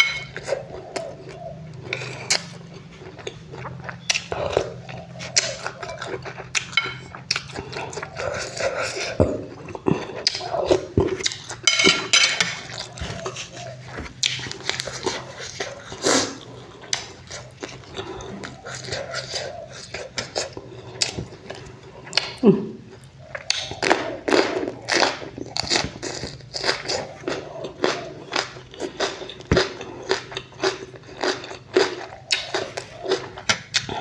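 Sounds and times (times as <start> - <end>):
cutlery clinking against a dish: 0.0 - 0.5, 5.7 - 7.5, 11.2 - 13.6
mouth sounds of eating: 0.0 - 34.0.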